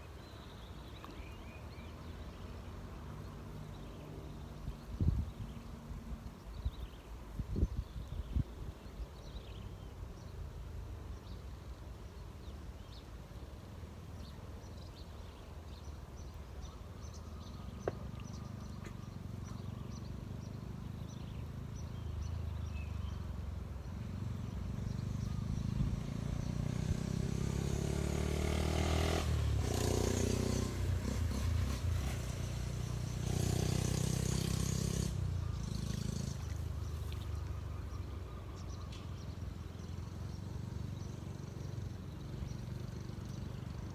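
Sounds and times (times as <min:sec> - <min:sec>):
engine passing by: 0:17.5 - 0:43.9.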